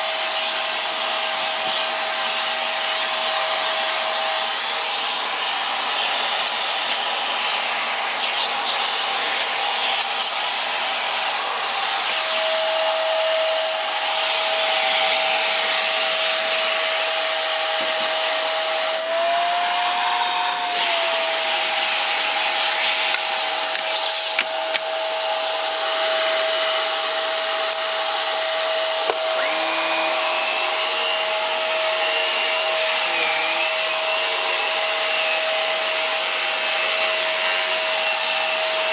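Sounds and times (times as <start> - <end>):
vacuum cleaner motor whine: 0.0 - 38.9
higher whine: 8.2 - 38.9.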